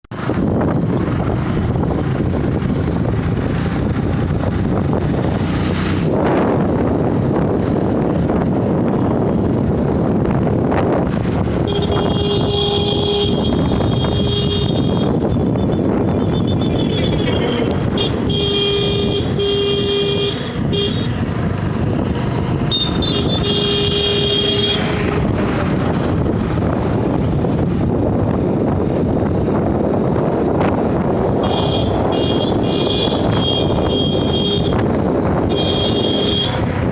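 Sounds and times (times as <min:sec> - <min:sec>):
vehicle engine and road rumble: 0:00.0 - 0:36.9
wind buffeting microphone: 0:00.1 - 0:36.9
vehicle horn honking: 0:11.6 - 0:15.3, 0:16.2 - 0:21.2, 0:22.6 - 0:25.1, 0:31.4 - 0:36.7.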